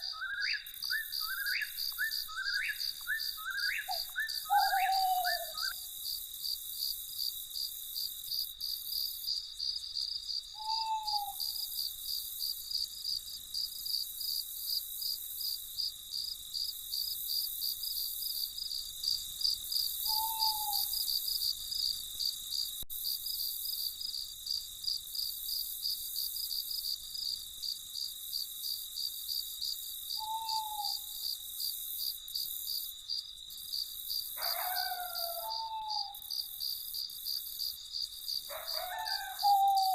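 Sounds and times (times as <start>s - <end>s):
owl hoot: 0.0s - 5.8s, 10.6s - 11.7s, 20.1s - 21.0s, 30.2s - 31.1s, 34.4s - 36.3s, 38.5s - 39.9s
crickets chirping: 0.0s - 39.9s.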